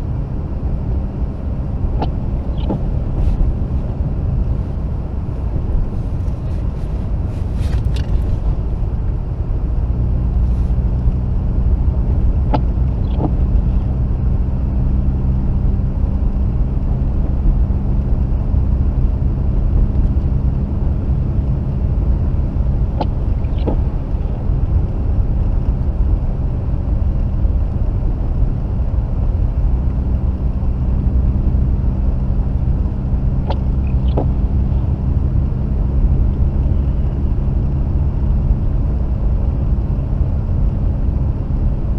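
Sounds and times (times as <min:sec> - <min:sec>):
car engine running: 0:00.0 - 0:41.9
road rumble: 0:00.0 - 0:41.9.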